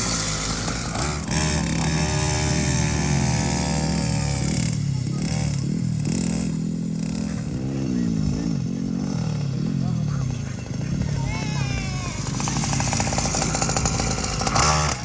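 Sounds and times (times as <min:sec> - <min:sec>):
mini motocross bike engine: 0:00.0 - 0:15.0.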